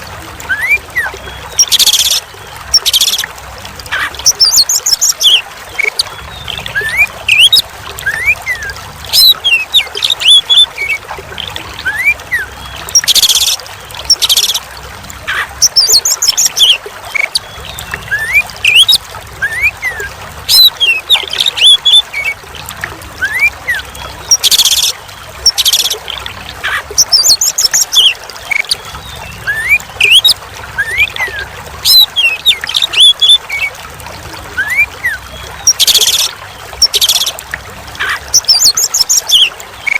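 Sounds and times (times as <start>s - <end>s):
trickling water: 0.0s - 39.9s
bird singing: 15.3s - 22.4s, 23.2s - 33.7s, 38.0s - 39.9s.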